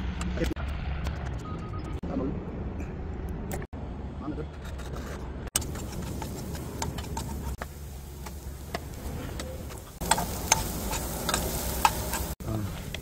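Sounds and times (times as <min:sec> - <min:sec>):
spoon scraping a pan: 0:05.6 - 0:08.4, 0:09.1 - 0:12.4
garlic sizzling in oil: 0:05.6 - 0:13.0
utensils clicking on a pan: 0:05.6 - 0:13.0.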